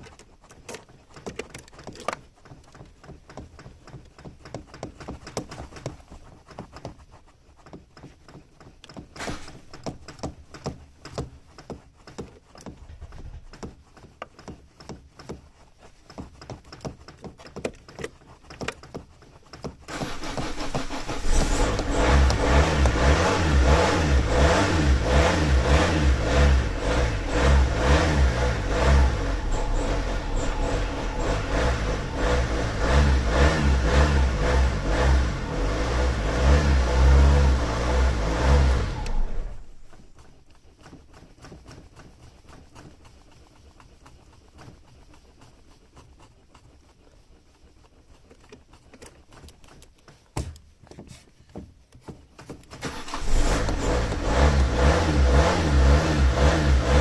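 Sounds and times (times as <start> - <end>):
car engine revving: 19.9 - 40.0, 52.8 - 57.0.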